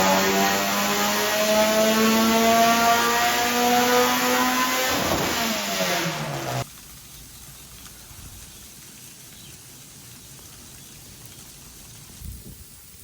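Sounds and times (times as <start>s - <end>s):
race car engine revving: 0.0s - 6.6s.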